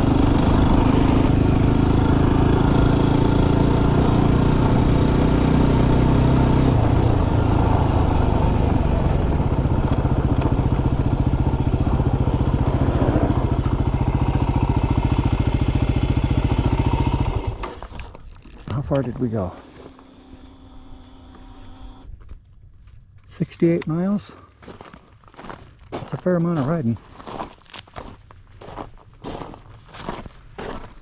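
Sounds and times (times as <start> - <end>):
motorcycle engine idling: 6.6 - 18.0.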